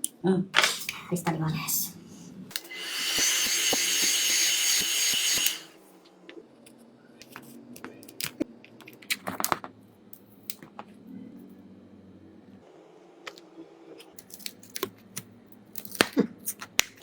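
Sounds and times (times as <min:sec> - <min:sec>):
hot-air blower hissing and whining: 0:02.4 - 0:06.0.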